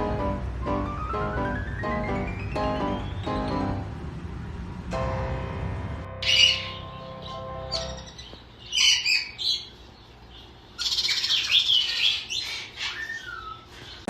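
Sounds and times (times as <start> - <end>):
parrot chirping and chattering: 6.2 - 14.0.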